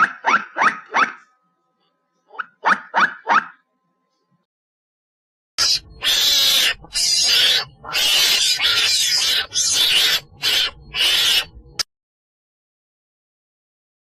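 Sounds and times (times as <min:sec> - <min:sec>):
animal hissing calls: 0:05.6 - 0:11.5.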